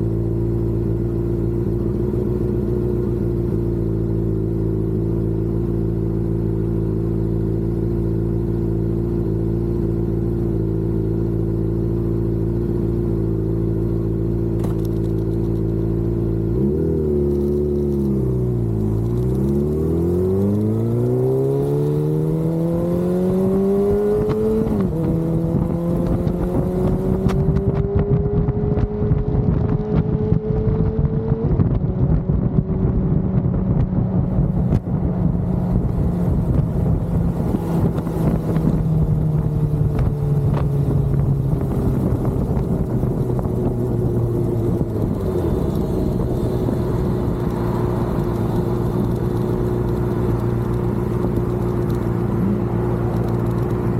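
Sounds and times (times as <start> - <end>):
road and wind noise: 0.0 - 53.9
vehicle engine accelerating: 0.0 - 53.9.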